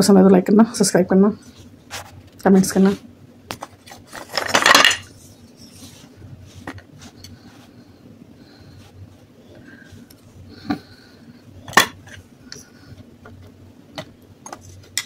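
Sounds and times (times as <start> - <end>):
clay pot pieces clinking: 4.2 - 5.1.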